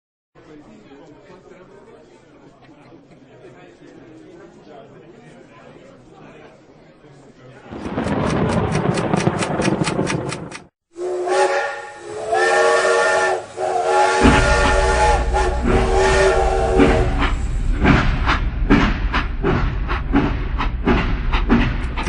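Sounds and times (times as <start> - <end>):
sharp clicks: 7.9 - 10.7
chord whistle blasts: 11.0 - 17.3
low rumble: 14.2 - 22.0.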